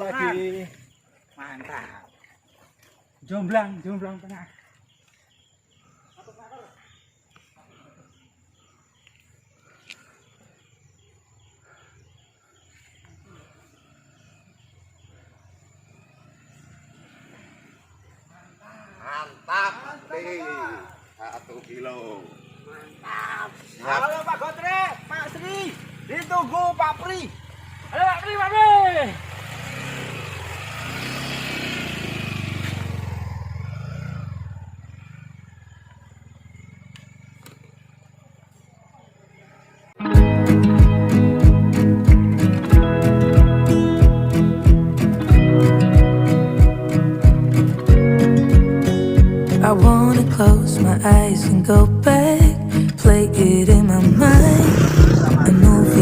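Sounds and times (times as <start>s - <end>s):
vehicle engine running: 22.3s - 38.6s, 40.2s - 56.0s
low rumble: 54.0s - 56.0s.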